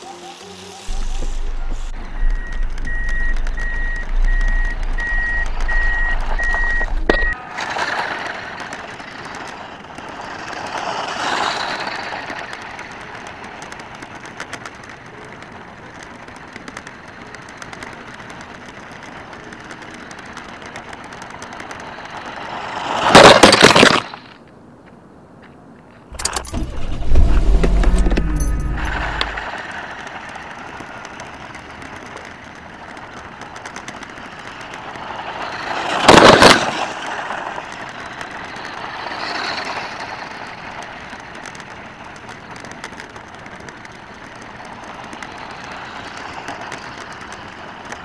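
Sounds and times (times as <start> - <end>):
short high beeps: 0.0 - 7.4
toy truck driving over gravel: 0.0 - 24.4, 26.1 - 48.0.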